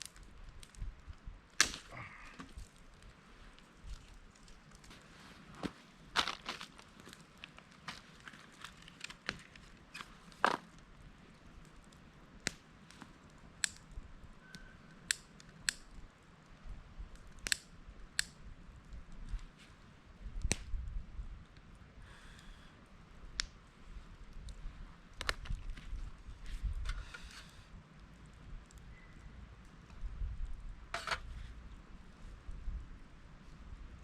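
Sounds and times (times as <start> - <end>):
sharp clicks and snaps: 15.1 - 15.9, 17.2 - 19.4, 24.4 - 25.8.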